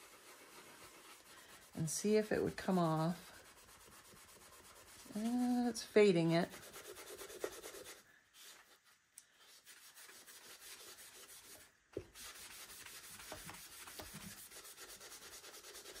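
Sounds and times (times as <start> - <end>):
foam eraser rubbing on wood: 0.0 - 8.0.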